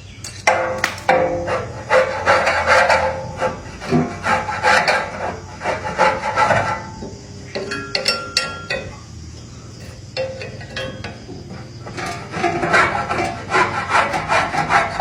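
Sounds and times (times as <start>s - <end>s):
hand scraping or filing metal: 0.8s - 7.0s, 12.0s - 15.0s.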